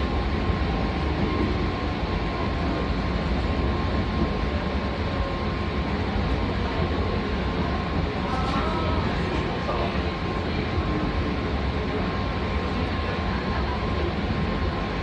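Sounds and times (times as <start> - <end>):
passenger train running: 0.0 - 15.0.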